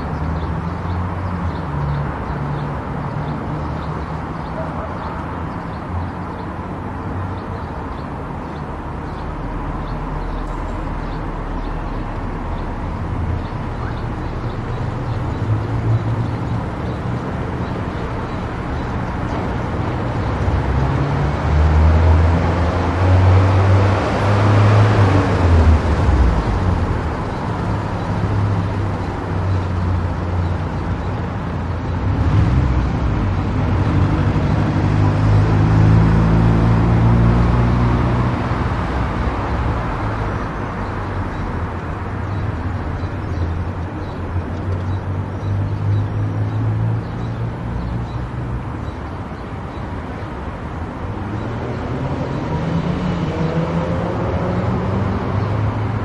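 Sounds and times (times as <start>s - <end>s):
car engine and tyre rumble: 0.0s - 56.0s
vehicle passing close by: 10.8s - 42.6s, 50.0s - 56.0s.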